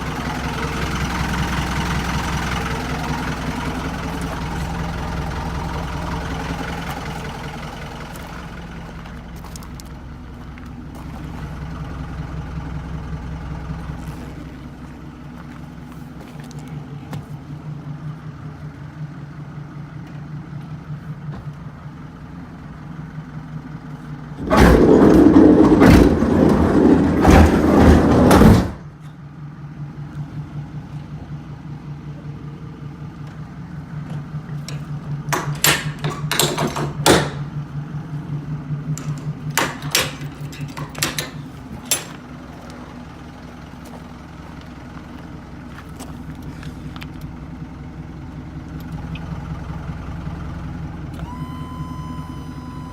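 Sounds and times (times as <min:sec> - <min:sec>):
truck engine idling: 0:00.0 - 0:52.9
sharp clicks and knocks: 0:34.1 - 0:37.5, 0:38.9 - 0:42.3.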